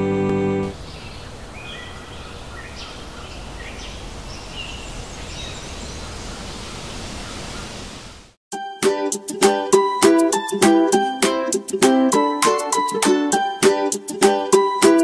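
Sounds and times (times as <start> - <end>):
plucked-string music: 0.0 - 0.7, 8.6 - 15.0
outdoor noise bed: 0.0 - 8.4.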